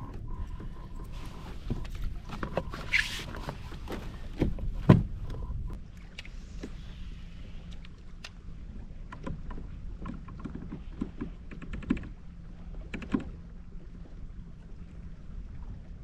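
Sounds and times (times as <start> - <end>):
steady low rumble: 0.0 - 11.5.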